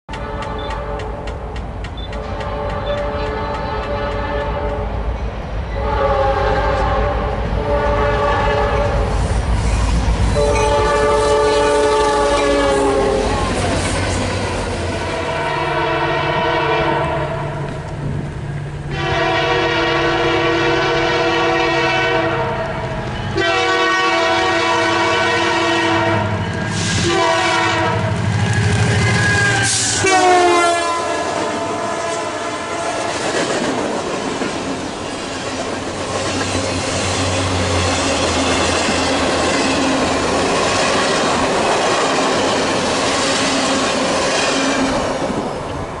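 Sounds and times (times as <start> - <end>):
train air horn blasts: 0.1 - 1.3, 2.2 - 4.9, 5.7 - 9.6, 10.3 - 17.8, 18.8 - 33.3
train wheels clattering on rail joints: 0.1 - 5.3, 32.9 - 46.0.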